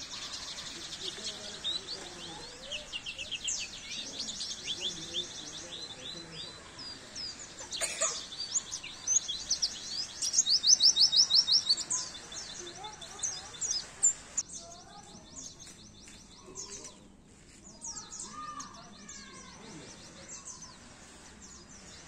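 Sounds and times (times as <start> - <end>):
bird trilling and twittering: 0.0 - 17.1.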